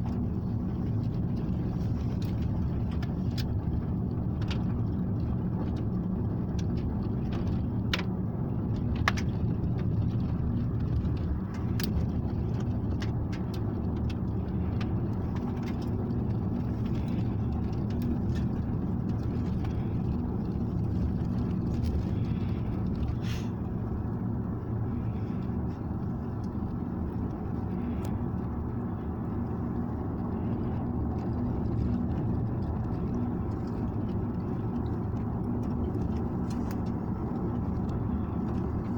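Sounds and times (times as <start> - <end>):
car engine and road rumble: 0.0 - 38.9
small clicks and knocks: 6.6 - 8.2, 8.8 - 10.0.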